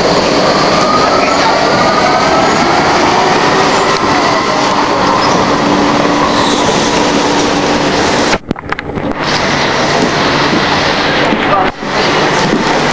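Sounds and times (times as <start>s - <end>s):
light-rail train rumble: 0.0s - 12.9s
high wheel squeal: 3.7s - 7.0s.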